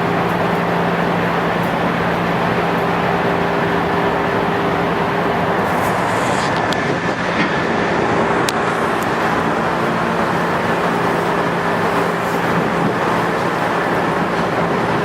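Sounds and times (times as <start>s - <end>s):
traction motor hum: 0.0s - 15.0s
train wheels rumbling on rail: 0.0s - 15.0s.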